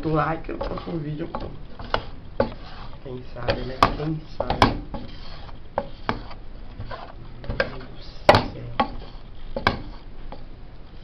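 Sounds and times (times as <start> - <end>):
utensils and frying pan knocking: 3.4 - 5.1, 7.5 - 10.4.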